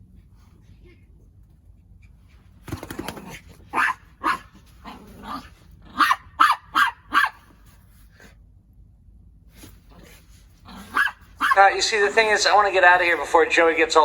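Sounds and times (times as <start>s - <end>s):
dog barking: 3.7s - 4.6s, 5.3s - 7.6s, 10.7s - 11.8s.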